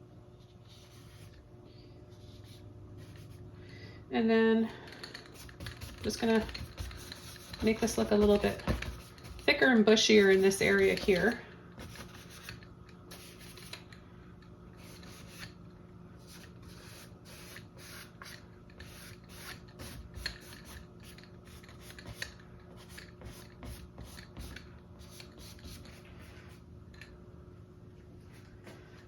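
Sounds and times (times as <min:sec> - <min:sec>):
paintbrush scrubbing on canvas: 0:05.3 - 0:13.7.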